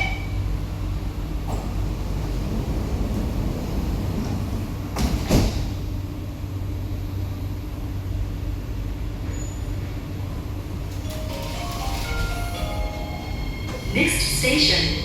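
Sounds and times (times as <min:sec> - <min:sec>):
low hum of train equipment: 0:00.0 - 0:15.0.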